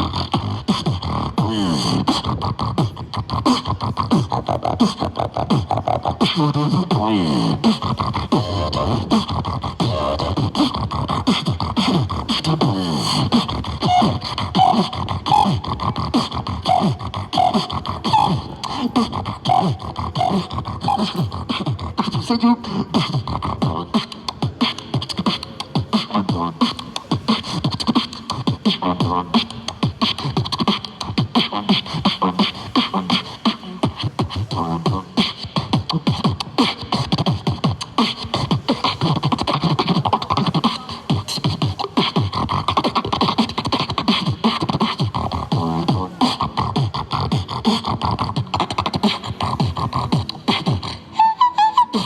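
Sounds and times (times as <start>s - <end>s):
person beatboxing: 0.0s - 52.0s.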